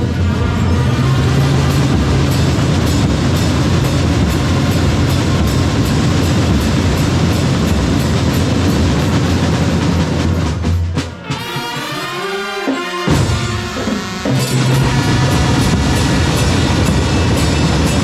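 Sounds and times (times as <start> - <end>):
brass playing sliding notes: 0.0 - 6.0, 11.2 - 18.0
heavy drumming: 0.0 - 18.0.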